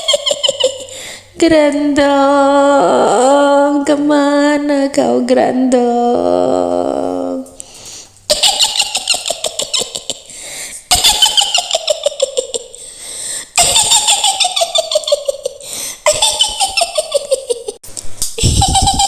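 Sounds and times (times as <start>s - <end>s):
high-pitched witch cackle: 0.0s - 1.0s, 8.3s - 10.3s, 10.9s - 12.8s, 13.6s - 17.8s, 18.4s - 19.0s.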